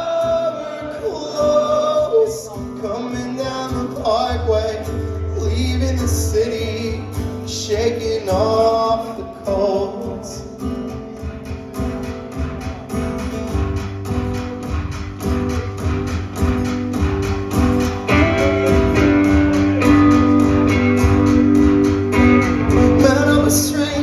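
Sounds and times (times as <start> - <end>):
strummed guitars: 0.0 - 24.0
drum beat: 6.9 - 24.0.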